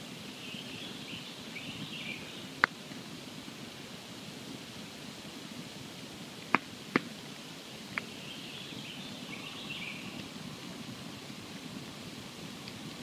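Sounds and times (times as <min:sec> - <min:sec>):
campfire crackling: 0:00.0 - 0:13.0
burning wood popping: 0:02.5 - 0:03.7, 0:04.4 - 0:08.2, 0:10.1 - 0:13.0.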